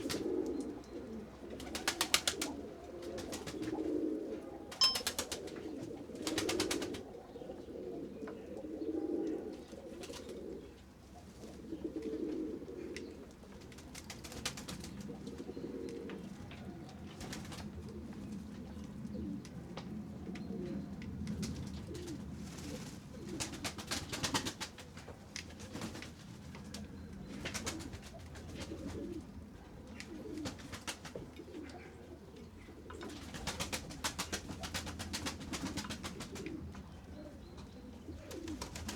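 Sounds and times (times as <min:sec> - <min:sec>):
pigeons cooing: 0:00.0 - 0:26.0, 0:26.6 - 0:38.9.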